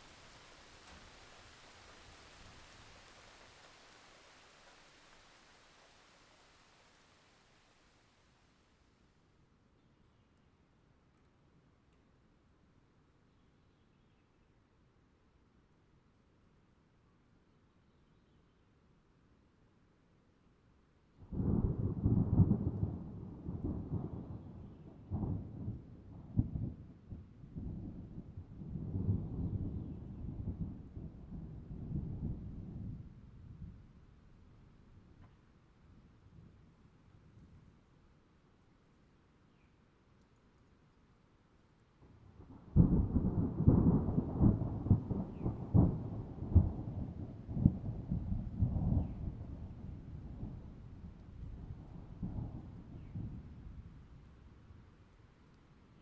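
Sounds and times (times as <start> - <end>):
thunder rumbling and cracking: 21.4 - 33.8, 42.4 - 54.0
thunder rumbling: 42.4 - 54.1.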